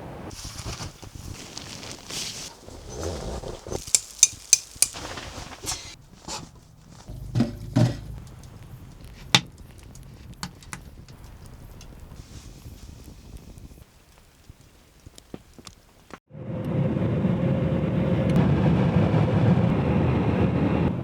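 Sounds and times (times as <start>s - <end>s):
dull knocks: 7.1s - 8.6s.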